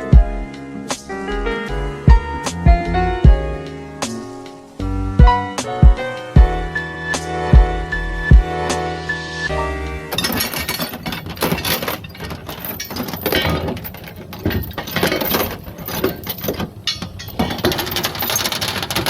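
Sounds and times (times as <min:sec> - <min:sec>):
hard objects clinking together: 0:10.1 - 0:19.0.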